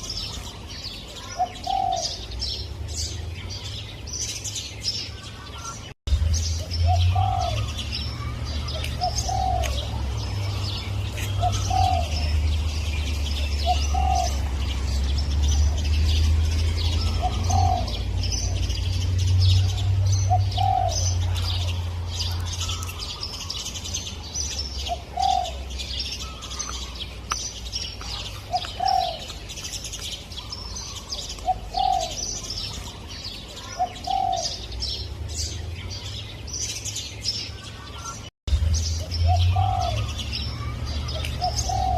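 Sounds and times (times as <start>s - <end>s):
small birds chirping: 0.0s - 41.9s
dove cooing: 1.2s - 2.3s, 6.8s - 10.4s, 11.1s - 12.5s, 13.3s - 14.6s, 16.8s - 18.7s, 19.6s - 23.0s, 24.8s - 26.6s, 28.1s - 29.4s, 30.5s - 32.7s, 33.6s - 34.7s, 39.2s - 41.9s.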